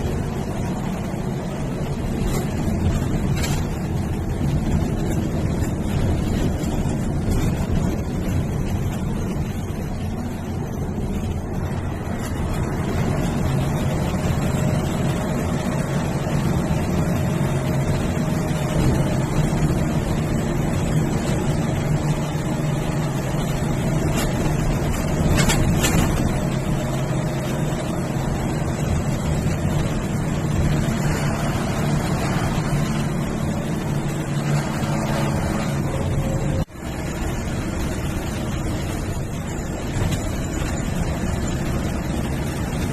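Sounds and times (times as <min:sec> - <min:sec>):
bus diesel engine running: 0:00.0 - 0:42.9
clatter: 0:00.0 - 0:42.9
road and wind noise: 0:00.0 - 0:42.9.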